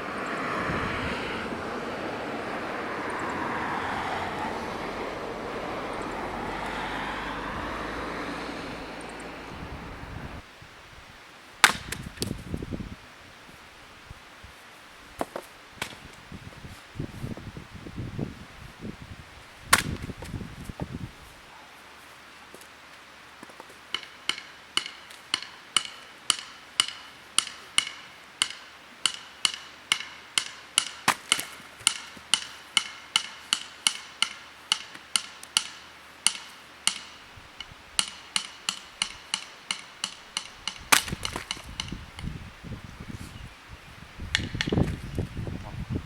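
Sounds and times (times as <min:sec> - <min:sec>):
hammer striking steel tent peg: 0:23.9 - 0:41.9.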